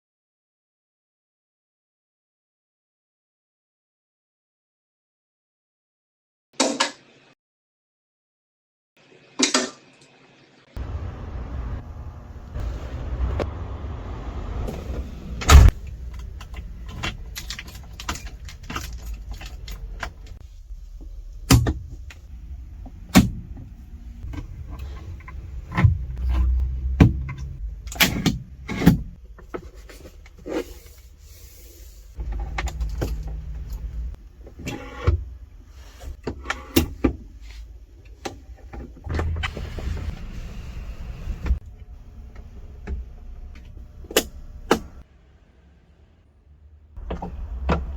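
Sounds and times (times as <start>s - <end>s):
car engine rumble: 10.8s - 36.1s, 36.9s - 47.9s.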